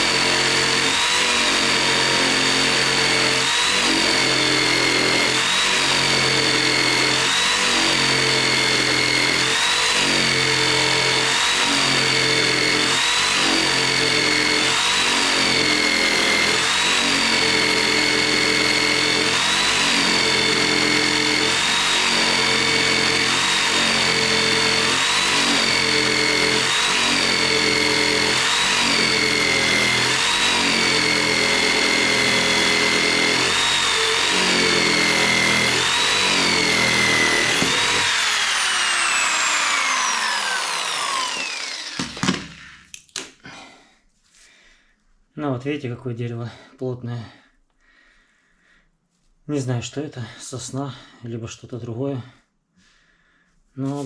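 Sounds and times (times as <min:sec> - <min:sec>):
electric jigsaw cutting wood: 0:00.0 - 0:43.6.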